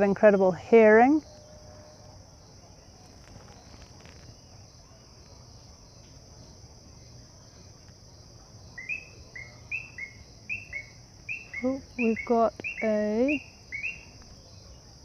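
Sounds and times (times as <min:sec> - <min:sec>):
loud short chirping calls: 0:08.8 - 0:14.2
frog chorus trilling: 0:08.8 - 0:14.8.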